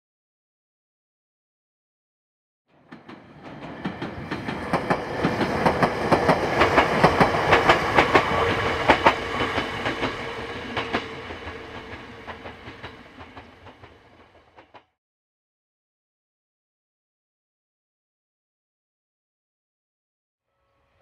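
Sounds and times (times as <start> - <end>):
electric train passing: 2.7 - 14.8
wheels clacking over rail joints: 2.8 - 14.8.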